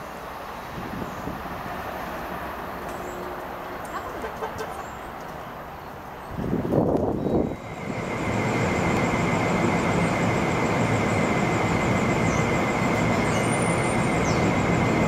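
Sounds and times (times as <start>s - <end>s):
train rumbling: 0.0s - 15.0s
thin high whine: 7.3s - 15.0s.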